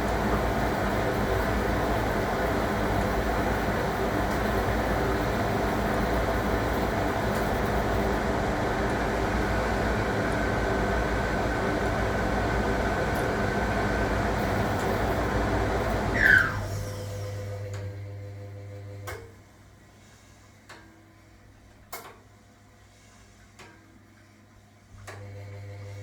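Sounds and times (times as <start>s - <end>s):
washing machine rumbling: 0.0s - 19.0s
short gliding squeak: 16.2s - 16.9s.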